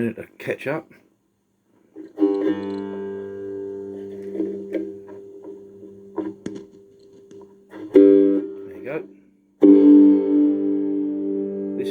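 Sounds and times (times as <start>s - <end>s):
cigar box guitar strummed chord: 2.0s - 9.0s, 9.6s - 11.9s
plucked guitar notes: 2.0s - 11.9s.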